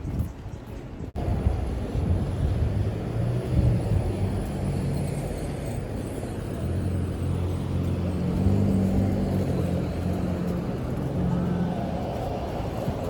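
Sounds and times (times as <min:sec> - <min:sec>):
transit vehicle rumble: 0:00.0 - 0:13.0.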